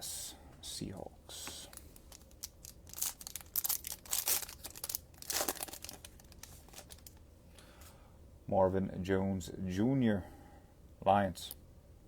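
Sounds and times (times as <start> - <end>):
foil wrapper tearing and crinkling: 1.7 - 7.2.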